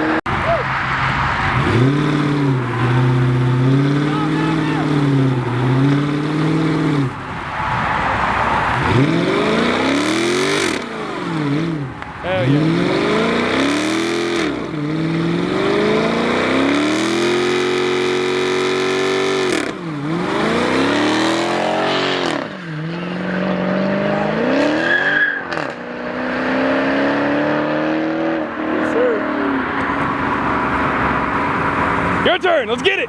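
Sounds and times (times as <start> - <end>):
car engine revving hard: 1.2 - 32.2.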